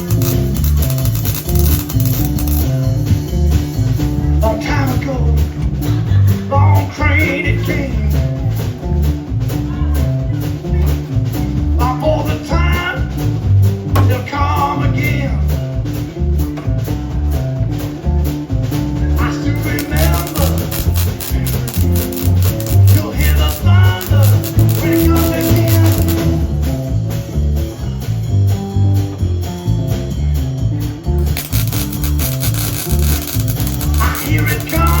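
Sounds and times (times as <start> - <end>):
blues band music: 0.0 - 35.0
person singing: 6.4 - 8.4, 19.2 - 26.6, 33.6 - 35.0.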